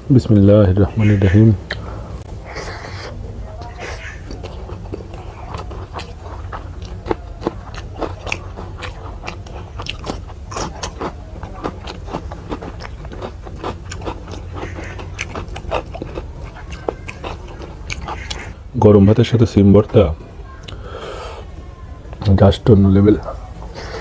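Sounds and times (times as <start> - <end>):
steady low hum: 0.0 - 24.0
wet chewing and mouth smacks: 2.5 - 18.6.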